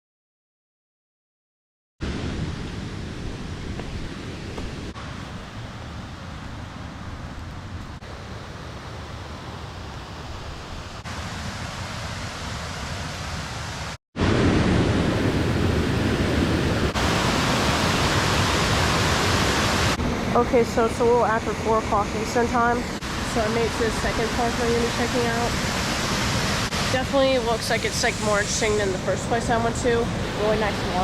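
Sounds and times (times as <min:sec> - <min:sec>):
waterfall rushing: 0:15.0 - 0:21.6, 0:22.2 - 0:31.0.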